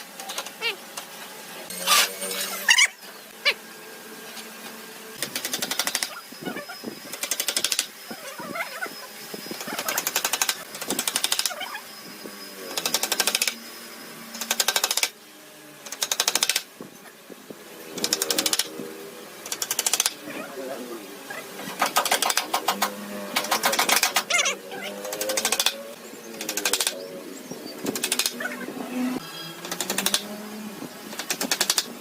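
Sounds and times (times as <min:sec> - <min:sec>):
power tool fast hammering clicks: 0:05.2 - 0:06.2, 0:07.1 - 0:08.0, 0:09.5 - 0:11.6, 0:12.7 - 0:13.6, 0:14.3 - 0:15.2, 0:15.8 - 0:16.7, 0:17.9 - 0:18.8, 0:19.4 - 0:20.2, 0:21.7 - 0:24.4, 0:25.0 - 0:27.0, 0:27.8 - 0:28.4, 0:29.6 - 0:30.4, 0:31.1 - 0:32.0.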